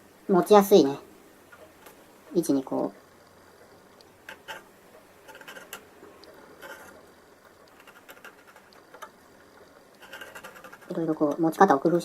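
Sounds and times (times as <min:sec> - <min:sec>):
scratching and clicks of plastic part: 0:04.0 - 0:12.0.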